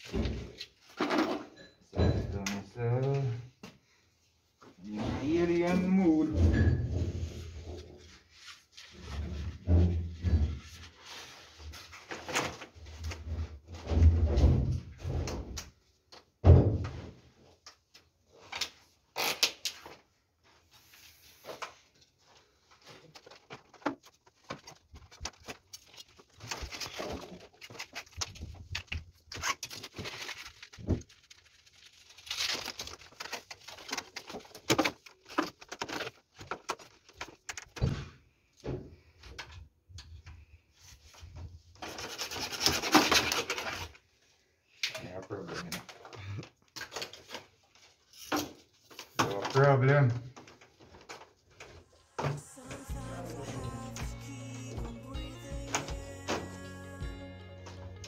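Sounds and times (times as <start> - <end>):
plastic pipes knocking and rubbing: 8.9 - 15.7, 22.8 - 31.2, 32.7 - 39.6, 41.1 - 44.0.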